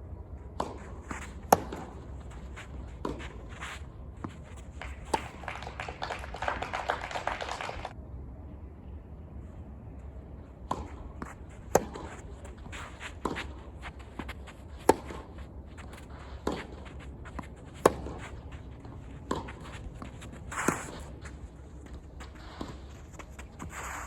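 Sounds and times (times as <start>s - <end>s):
tennis ball struck with rackets: 0.6s - 2.1s, 10.7s - 21.2s.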